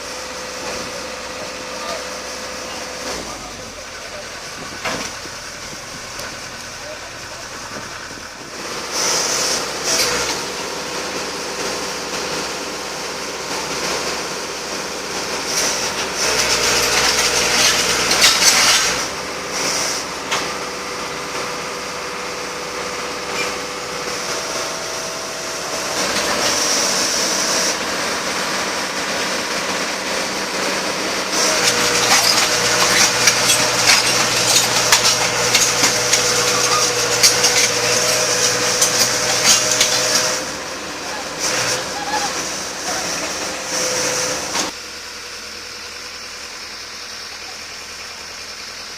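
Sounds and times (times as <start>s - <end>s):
backhoe engine running: 0.0s - 48.9s
metal wheels scraping on concrete: 15.2s - 20.7s, 22.8s - 44.8s.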